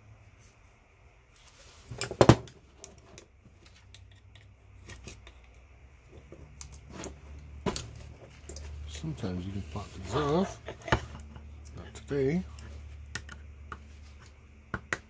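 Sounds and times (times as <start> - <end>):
light clicks and taps of tools: 2.8 - 8.8, 12.5 - 15.0.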